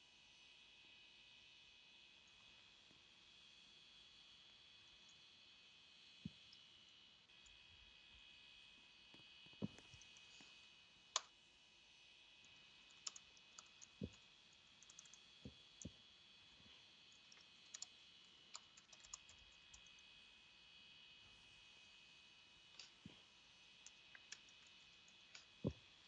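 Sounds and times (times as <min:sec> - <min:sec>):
small clicks and taps: 0:09.1 - 0:11.4, 0:12.4 - 0:16.0, 0:17.1 - 0:20.0, 0:22.7 - 0:23.2, 0:23.8 - 0:25.9.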